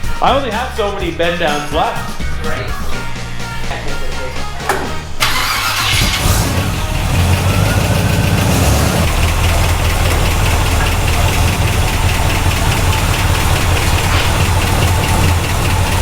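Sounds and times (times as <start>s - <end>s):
car engine cranking and idling: 4.6s - 16.0s.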